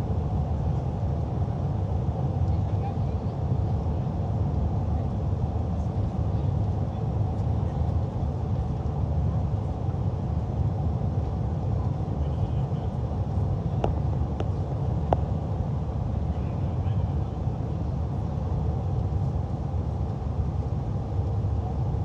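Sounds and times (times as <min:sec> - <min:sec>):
airliner cabin rumble: 0:00.1 - 0:22.0.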